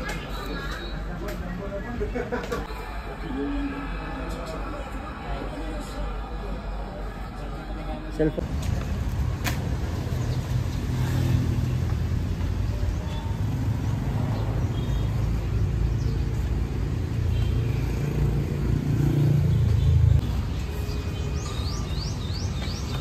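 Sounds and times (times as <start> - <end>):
motor vehicle rumbling: 8.4 - 23.0.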